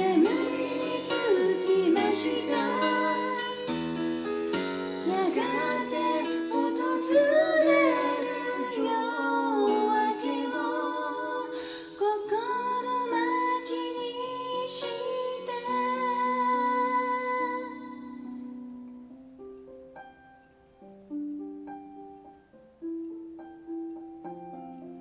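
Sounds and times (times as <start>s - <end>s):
woman singing pop ballad: 0.0s - 3.8s, 5.0s - 17.9s
piano backing track: 0.0s - 25.0s.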